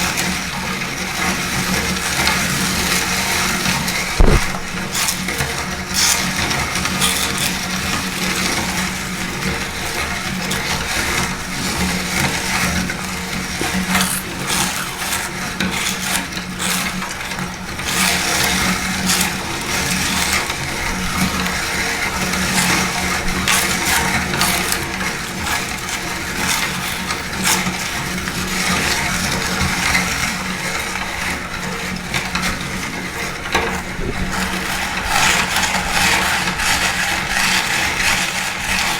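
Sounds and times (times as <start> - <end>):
meat grinder motor hum: 0.0 - 38.9
crunchy food crackling: 3.8 - 9.0, 11.5 - 29.2.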